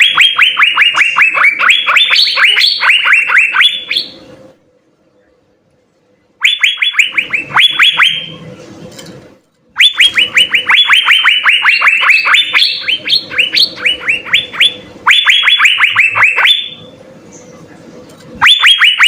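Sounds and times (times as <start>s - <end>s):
bird singing downward whistles: 0.0s - 4.3s, 6.4s - 8.4s, 9.8s - 16.9s, 18.4s - 19.0s.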